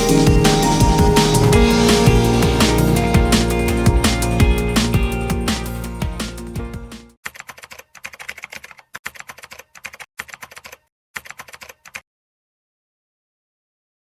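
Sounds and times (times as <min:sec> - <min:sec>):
electronic background music: 0:00.0 - 0:07.2
keyboard typing: 0:00.0 - 0:12.0.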